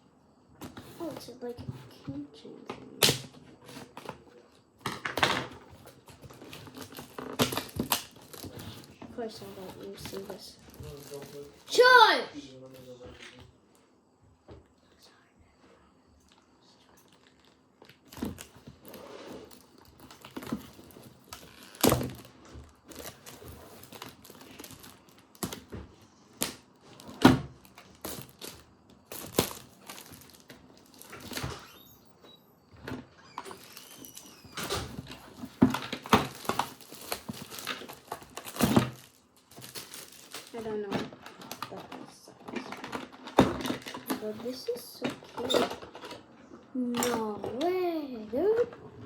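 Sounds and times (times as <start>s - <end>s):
packaging crinkling and rustling: 3.6s - 11.7s, 17.1s - 31.8s, 33.3s - 44.8s
plastic items clicking and knocking: 4.8s - 11.5s, 17.1s - 31.6s, 32.9s - 47.7s.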